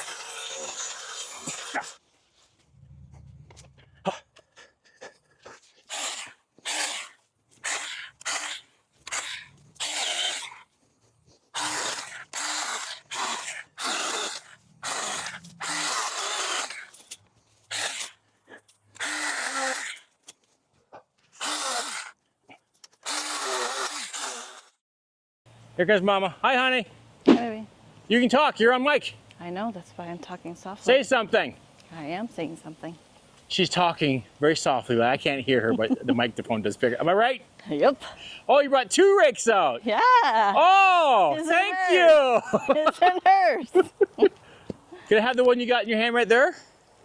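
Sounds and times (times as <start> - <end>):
cordless cutting tool bursts: 5.9 - 10.6, 11.6 - 17.0, 17.7 - 18.2, 19.0 - 20.1, 21.4 - 22.2, 23.0 - 24.8.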